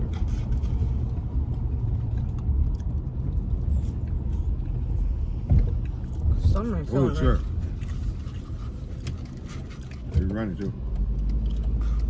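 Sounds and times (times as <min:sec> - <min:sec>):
car cabin rumble: 0:00.0 - 0:10.9.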